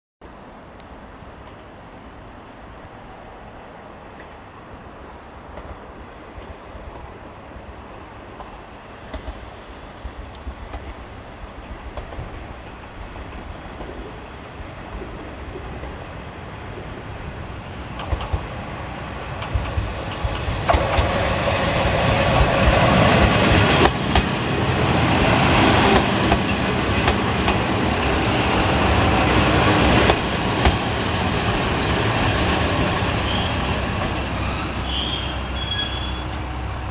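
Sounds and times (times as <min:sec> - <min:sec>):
diesel railcar engine and wheels: 0:00.2 - 0:36.9
wheels clacking over rail joints: 0:17.9 - 0:18.6, 0:19.3 - 0:36.5
brake squeals: 0:33.2 - 0:33.6, 0:34.4 - 0:36.8.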